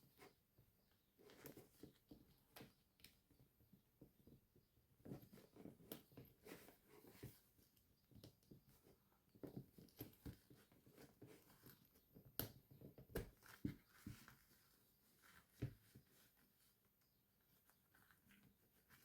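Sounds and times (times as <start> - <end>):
doll clothes rustling: 12.8 - 19.0.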